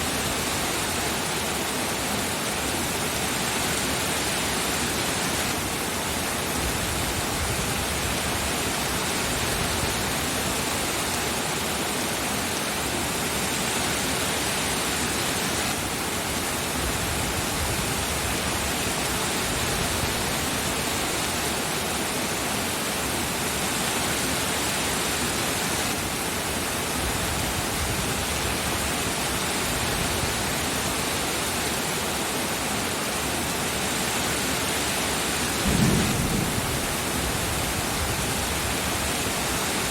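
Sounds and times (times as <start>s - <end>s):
heavy rain hiss: 0.0s - 39.9s.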